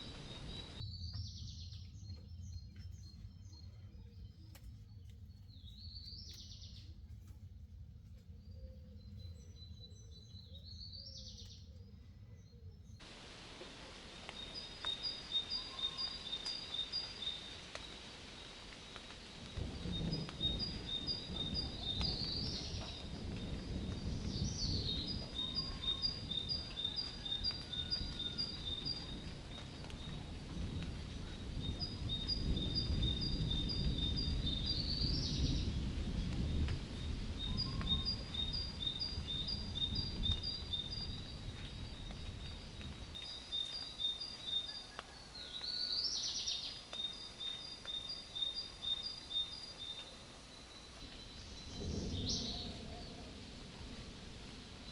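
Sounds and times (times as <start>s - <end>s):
low storm rumble: 0.0s - 54.9s.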